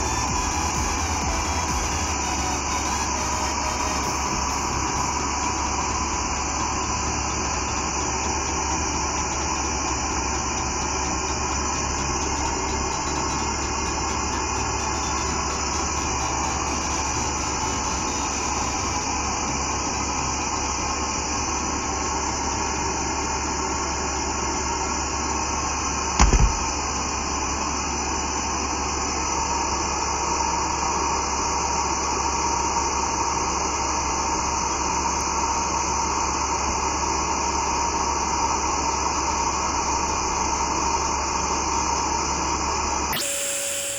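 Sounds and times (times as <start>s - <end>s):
machine fans running: 0.0s - 22.7s
short low thump: 26.2s - 26.7s.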